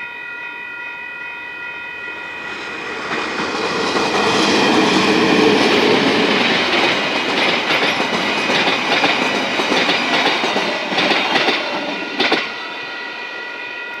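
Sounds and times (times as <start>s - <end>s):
crossing warning bell ringing: 0.0s - 14.0s
train rumbling: 1.8s - 14.0s
train wheels clacking on rail joints: 2.4s - 12.6s.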